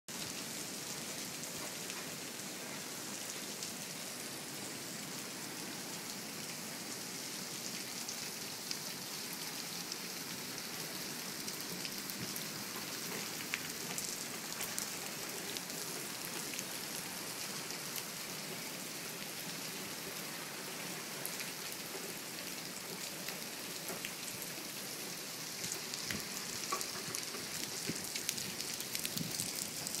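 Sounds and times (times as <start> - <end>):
heavy rain hissing: 24.7 - 30.0
raindrops pattering on umbrella: 25.6 - 30.0.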